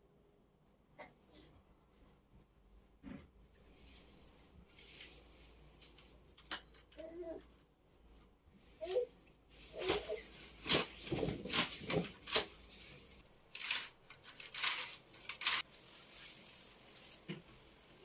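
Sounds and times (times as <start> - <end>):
household items clinking and clattering: 9.5 - 17.6.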